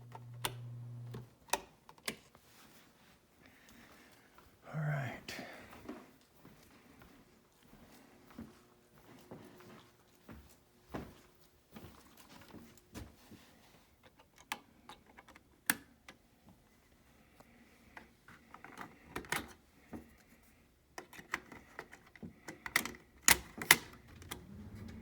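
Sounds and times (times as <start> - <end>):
faint steady hum: 0.0 - 1.3.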